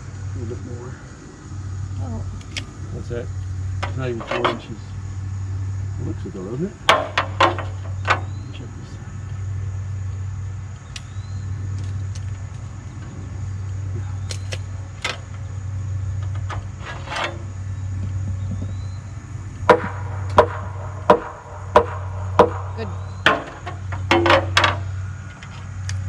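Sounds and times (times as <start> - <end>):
tractor engine idling: 0.0 - 26.0
hammer striking wood: 6.9 - 8.3, 19.7 - 24.8.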